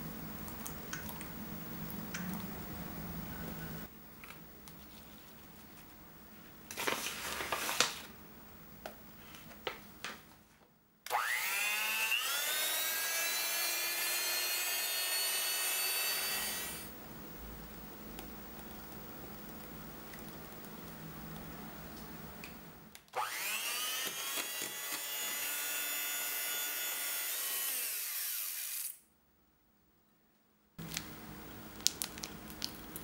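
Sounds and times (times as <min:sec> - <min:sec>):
electric hand mixer whining: 0:11.1 - 0:16.9, 0:23.2 - 0:27.9.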